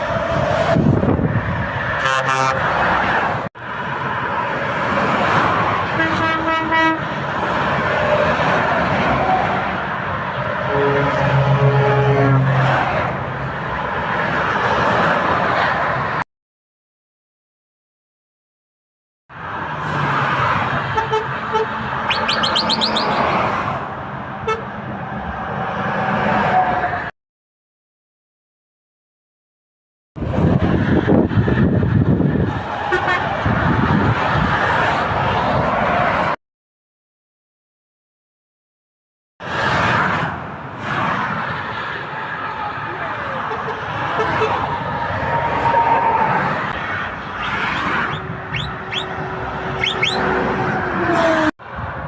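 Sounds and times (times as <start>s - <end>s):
road traffic noise: 0.0s - 16.2s, 19.3s - 27.1s, 30.2s - 36.4s, 39.4s - 52.0s
truck horn multi-tone blasts: 2.0s - 3.0s, 5.9s - 7.2s, 10.6s - 12.9s, 20.9s - 23.4s, 24.4s - 24.8s, 32.9s - 33.3s, 43.5s - 44.7s, 47.7s - 50.7s
truck engine: 19.4s - 24.8s, 42.7s - 51.5s.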